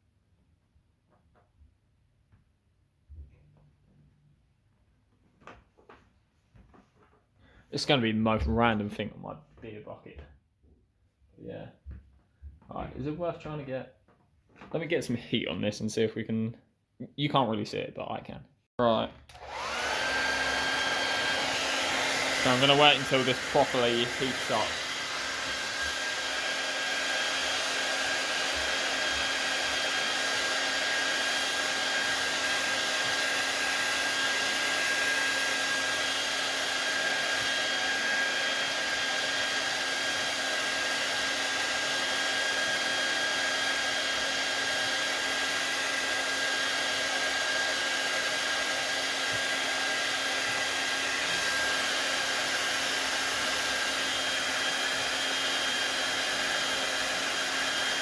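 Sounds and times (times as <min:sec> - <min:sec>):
hot-air blower rushing with fan whine: 0:19.3 - 0:58.0.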